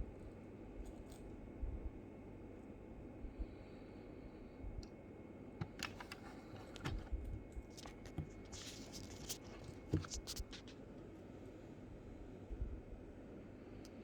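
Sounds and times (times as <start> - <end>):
packaging rustle: 5.6 - 10.8.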